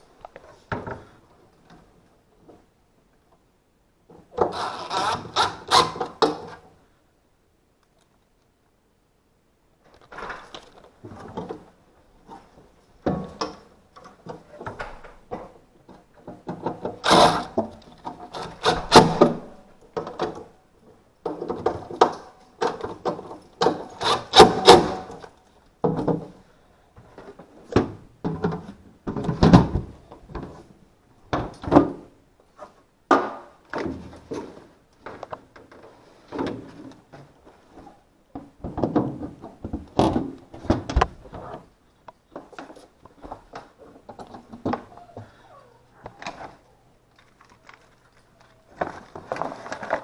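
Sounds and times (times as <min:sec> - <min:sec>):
objects knocking and thudding: 0:38.3 - 0:41.6.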